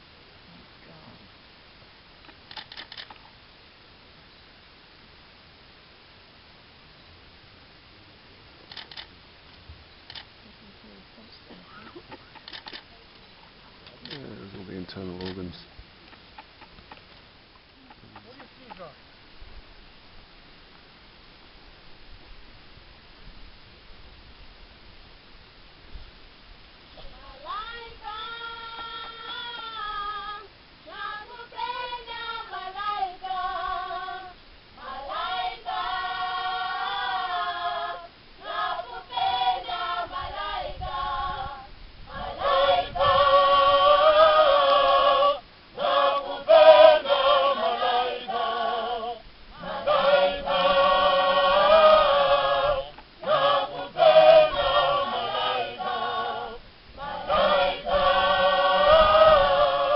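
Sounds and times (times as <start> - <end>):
choir singing unaccompanied: 27.0 - 59.9.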